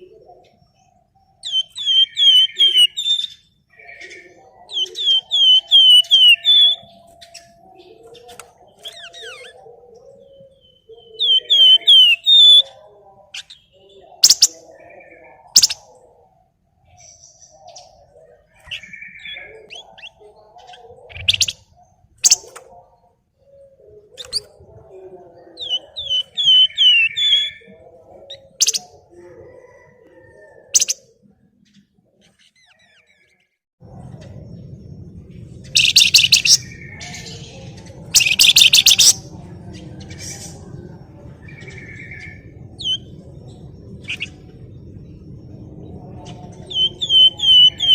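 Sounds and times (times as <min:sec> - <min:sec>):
songbird chirping: 0:00.0 - 0:47.9
sharp bird call notes: 0:35.8 - 0:36.8, 0:38.2 - 0:39.3.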